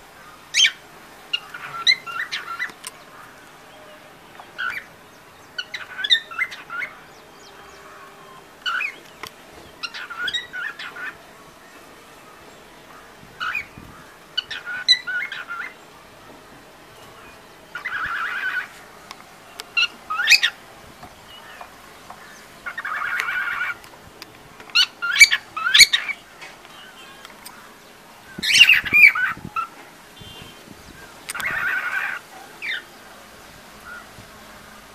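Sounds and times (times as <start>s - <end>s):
harsh buzzing bird calls: 0.0s - 24.1s, 24.7s - 34.9s.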